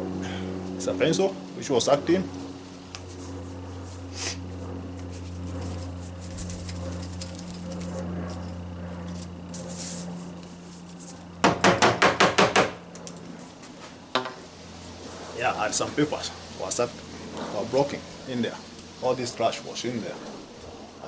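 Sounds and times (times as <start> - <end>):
steady low hum: 0.0 - 21.0
handling rustle: 2.4 - 11.3.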